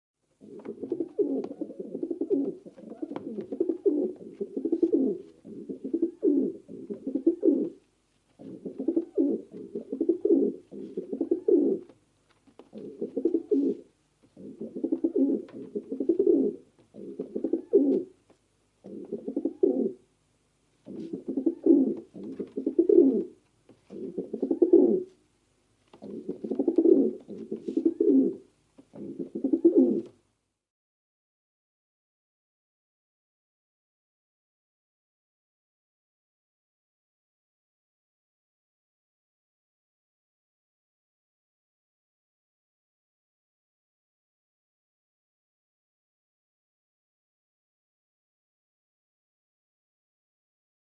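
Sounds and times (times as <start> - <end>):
pigeon cooing: 0.4 - 7.8, 8.4 - 12.0, 12.6 - 18.2, 18.8 - 20.0, 20.8 - 25.2, 25.9 - 30.2.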